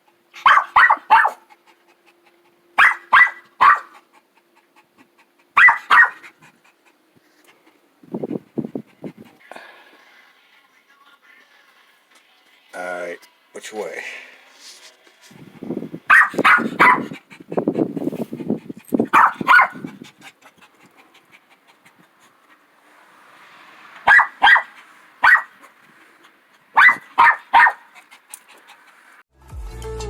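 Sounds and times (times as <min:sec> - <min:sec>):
small dog barking: 0:00.4 - 0:01.5, 0:02.8 - 0:04.0, 0:05.6 - 0:06.3, 0:16.0 - 0:17.2, 0:19.1 - 0:20.0, 0:24.0 - 0:25.7, 0:26.7 - 0:27.9.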